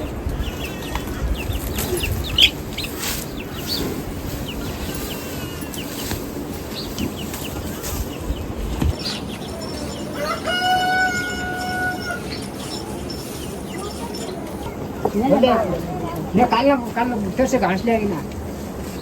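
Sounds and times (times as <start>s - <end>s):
steady low rumble: 0.0s - 10.2s
chickens clucking: 0.0s - 19.0s.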